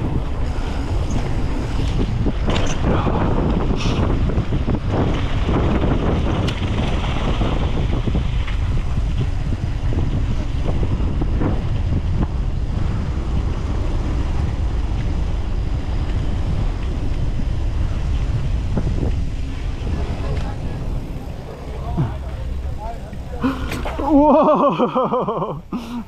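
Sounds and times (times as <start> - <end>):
rumble of tyres on trail: 0.0 - 26.0
wind buffeting microphone: 0.0 - 26.0
bike knocks and rattles: 1.0 - 12.5.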